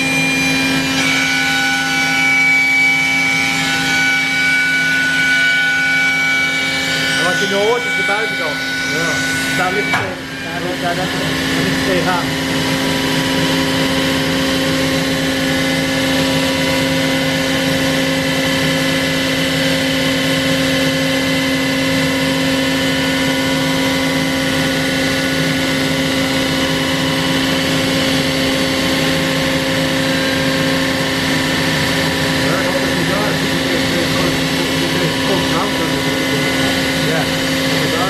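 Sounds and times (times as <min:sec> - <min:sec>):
router milling wood: 0:00.0 - 0:38.0.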